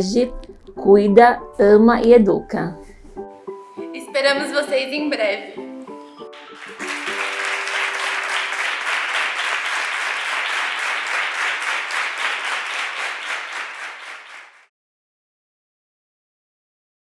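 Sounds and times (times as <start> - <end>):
crowd applauding: 6.0 - 14.7.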